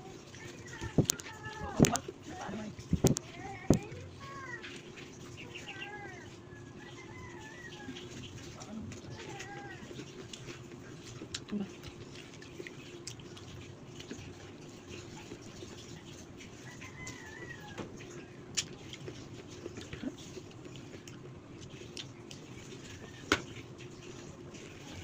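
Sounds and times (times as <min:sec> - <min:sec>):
wet mouth eating noises: 0:07.4 - 0:17.0, 0:18.0 - 0:25.0.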